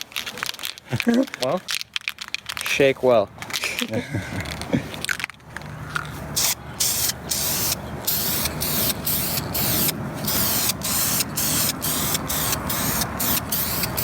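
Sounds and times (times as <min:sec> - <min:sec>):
aerosol can spraying: 0:06.4 - 0:14.0.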